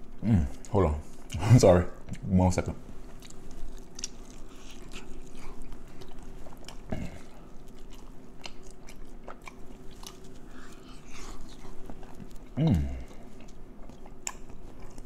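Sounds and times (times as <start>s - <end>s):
person chewing: 3.0s - 15.0s.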